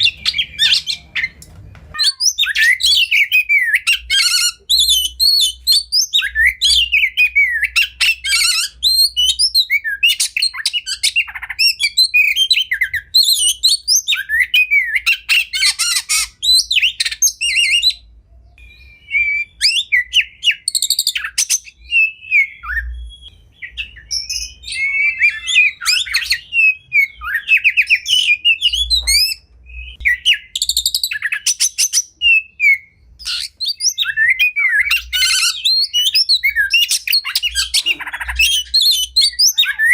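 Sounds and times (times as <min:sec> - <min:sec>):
songbird whistles and trills: 0:00.0 - 0:39.9.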